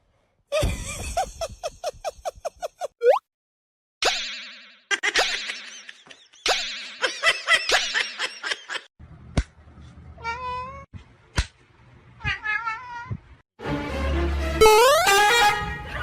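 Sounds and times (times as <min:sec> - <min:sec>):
cat meowing: 0:10.2 - 0:10.9, 0:12.2 - 0:13.2.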